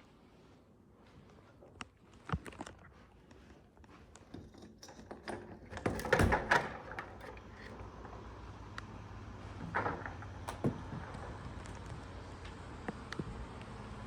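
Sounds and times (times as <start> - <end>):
clicks and knocks: 9.6 - 12.0.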